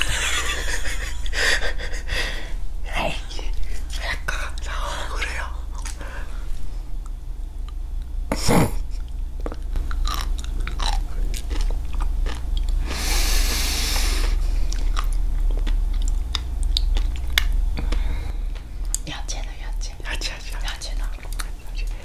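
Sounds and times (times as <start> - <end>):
chewing crisp seaweed: 9.0 - 13.1, 13.9 - 19.0, 20.4 - 22.0.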